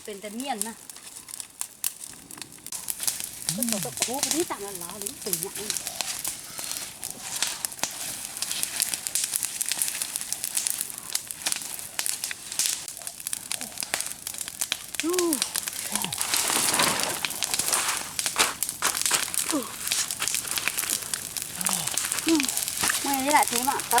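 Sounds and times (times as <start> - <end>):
fire crackling and popping: 0.0 - 24.0
fire hiss: 0.0 - 24.0.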